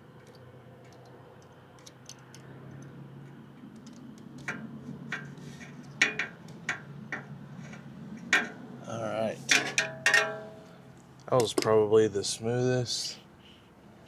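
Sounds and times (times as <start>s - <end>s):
small metal clicks: 0.0s - 8.6s.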